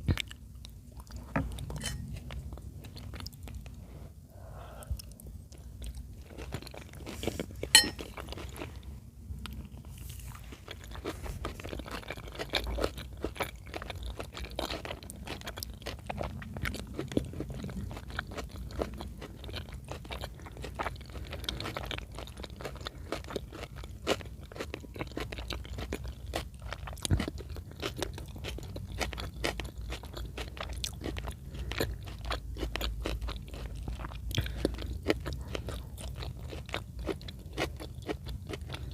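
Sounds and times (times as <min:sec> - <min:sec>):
close chewing with mouth clicks: 0:00.0 - 0:38.9.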